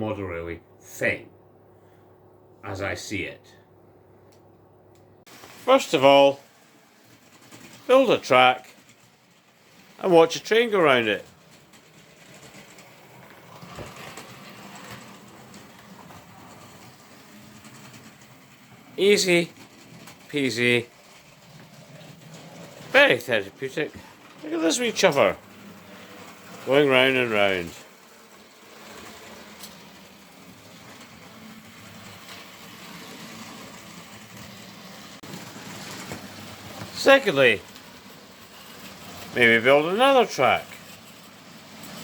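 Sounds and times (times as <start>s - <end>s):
model train rolling on track: 5.3s - 42.0s
wheels clicking over rail joints: 5.3s - 42.0s.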